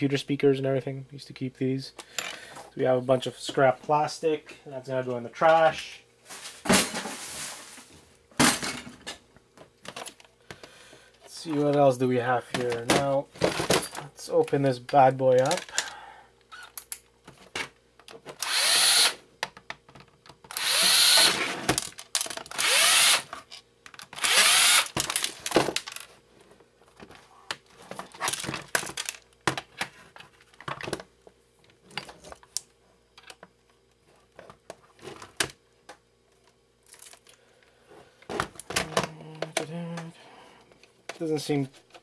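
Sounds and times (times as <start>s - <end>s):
cordless power driver whining: 18.4s - 19.2s, 20.5s - 21.7s, 22.4s - 23.4s, 24.1s - 25.2s.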